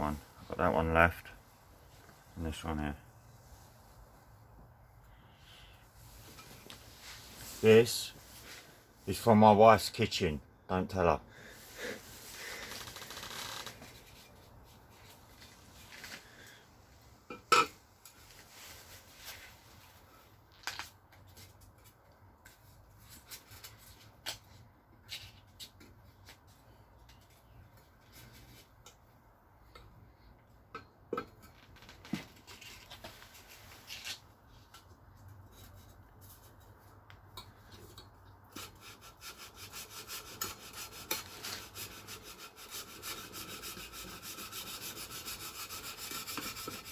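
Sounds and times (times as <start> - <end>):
sanding metal on sandpaper: 38.6 - 46.9.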